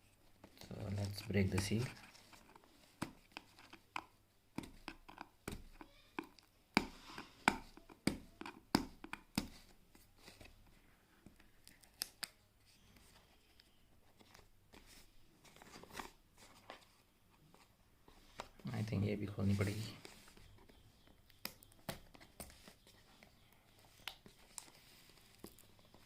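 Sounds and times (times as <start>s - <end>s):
clicks and taps on cardboard box: 3.0s - 9.7s.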